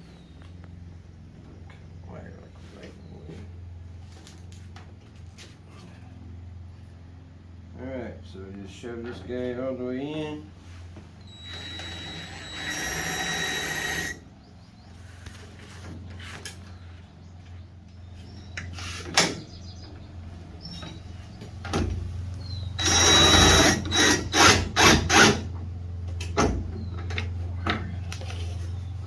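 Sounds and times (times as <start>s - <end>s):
power drill driving screws: 11.2s - 14.2s, 22.8s - 25.5s.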